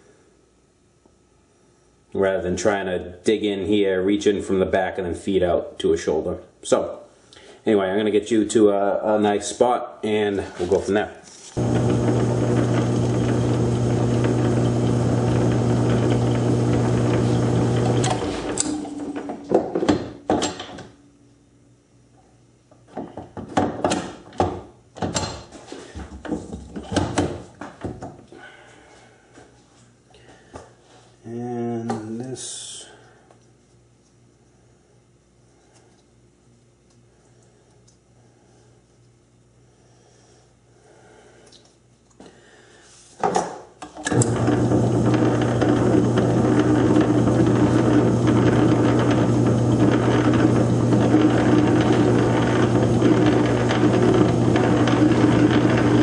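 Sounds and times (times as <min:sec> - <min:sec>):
lathe humming: 0:11.6 - 0:19.5, 0:44.1 - 0:56.0
tools clunking and knocking: 0:18.0 - 0:20.9.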